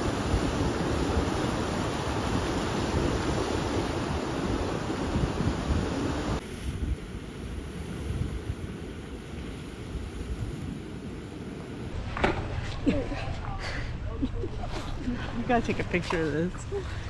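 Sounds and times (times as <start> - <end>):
ocean surf washing up: 0.0 - 12.1
wind buffeting microphone: 0.0 - 12.8.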